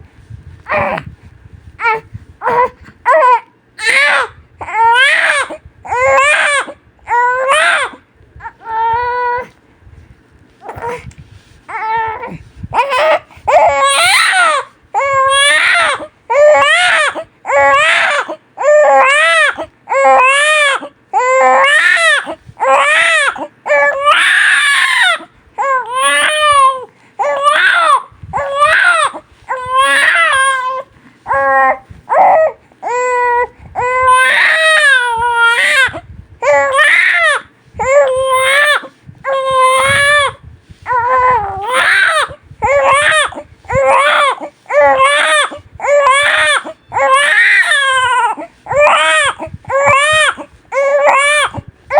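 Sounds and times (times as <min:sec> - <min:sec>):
baby crying: 0:01.8 - 0:09.5, 0:11.7 - 0:51.6.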